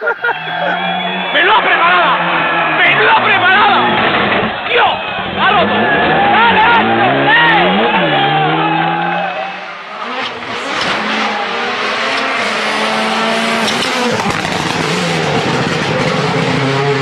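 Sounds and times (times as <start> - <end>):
rally car engine at high revs: 0.0 - 17.0
road and tyre noise: 0.0 - 17.0.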